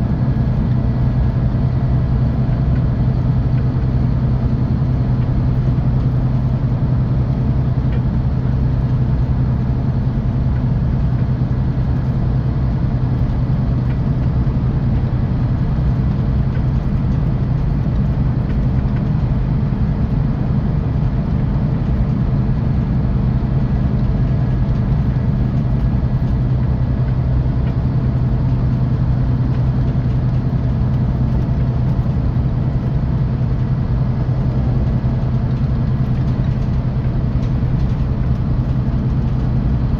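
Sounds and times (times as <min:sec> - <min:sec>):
bus diesel engine drone: 0:00.0 - 0:39.9
road noise: 0:00.0 - 0:39.9.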